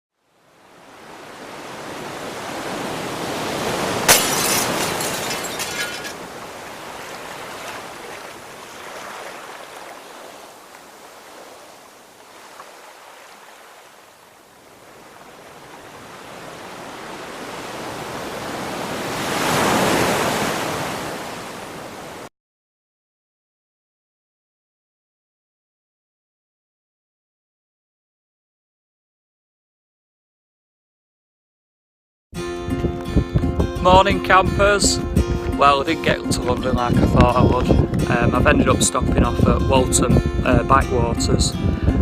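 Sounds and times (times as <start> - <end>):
sea water rushing: 0.3 - 22.3
sharp crack of a splash: 3.8 - 10.9
wind noise: 32.7 - 42.0.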